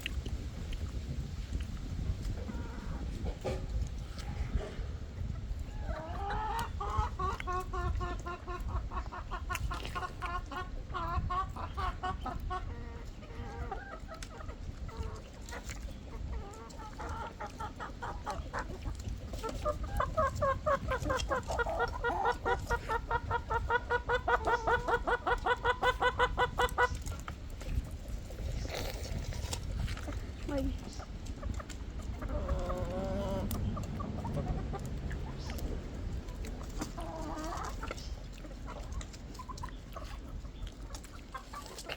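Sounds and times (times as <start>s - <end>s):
hens cackling: 1.8s - 41.9s
steady low rumble: 27.2s - 41.5s.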